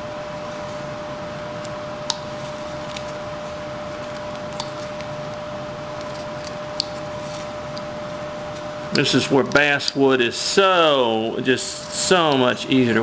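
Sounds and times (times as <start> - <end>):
background hum and hiss: 0.0 - 13.0
knife carving wood: 1.6 - 10.0.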